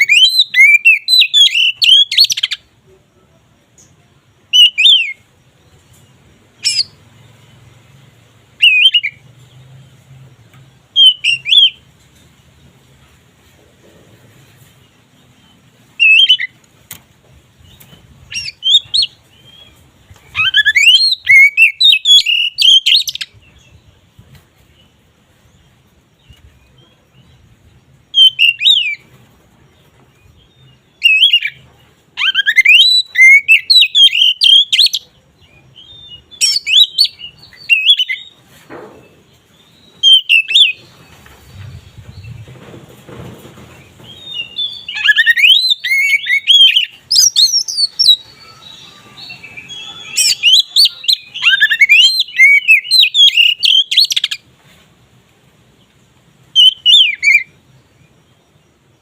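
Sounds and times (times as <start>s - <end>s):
bird singing whistles: 0.0s - 2.6s, 4.5s - 5.2s, 8.6s - 9.2s, 11.0s - 11.8s, 16.0s - 16.5s, 18.3s - 23.3s, 28.1s - 29.1s, 31.0s - 31.6s, 32.2s - 35.1s, 35.8s - 38.3s, 39.9s - 40.8s, 44.1s - 54.4s, 56.6s - 57.6s.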